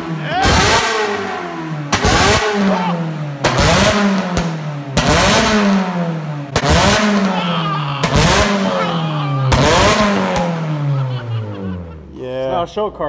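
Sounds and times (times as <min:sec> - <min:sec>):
car engine revving: 0:00.0 - 0:12.8.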